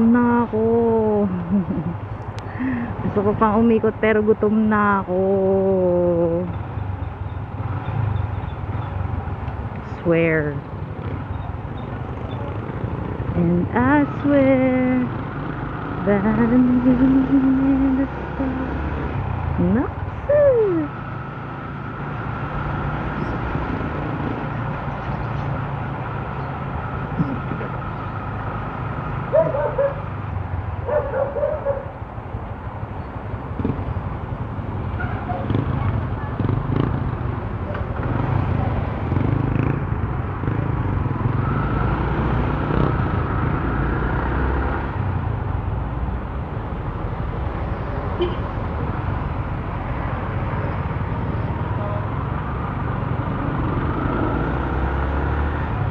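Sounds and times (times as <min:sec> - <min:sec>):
motorcycle engine running: 0:35.0 - 0:41.5.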